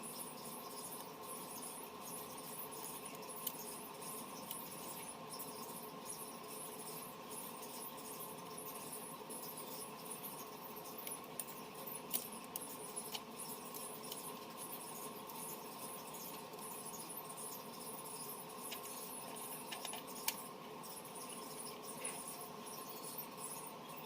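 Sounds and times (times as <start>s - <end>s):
small tools clicking and tapping: 11.0s - 14.6s, 19.7s - 20.4s.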